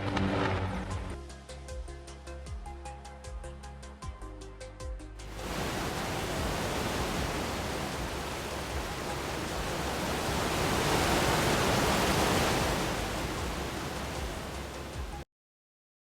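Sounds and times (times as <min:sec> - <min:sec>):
steady rushing noise: 0:05.2 - 0:15.2.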